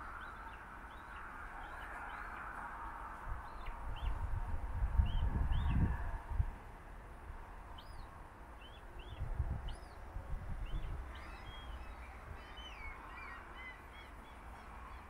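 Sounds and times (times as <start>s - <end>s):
small birds chirping: 0.0s - 2.7s, 3.4s - 4.3s, 7.7s - 15.0s.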